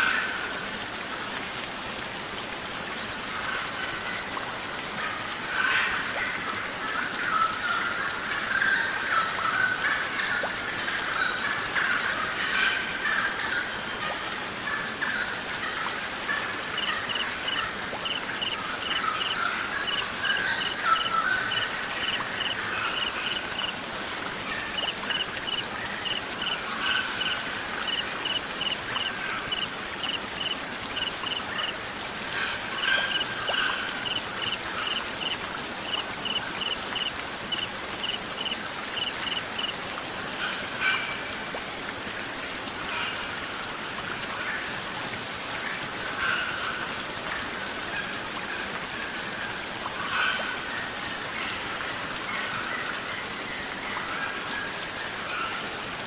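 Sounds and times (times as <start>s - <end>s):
rain or running water hiss: 0.0s - 56.0s
songbirds calling: 24.6s - 31.7s.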